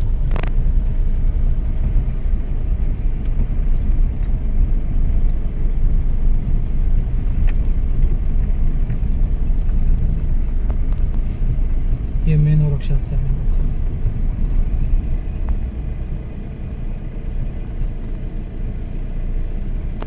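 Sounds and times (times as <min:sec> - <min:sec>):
vehicle road noise rumble: 0:00.0 - 0:20.0.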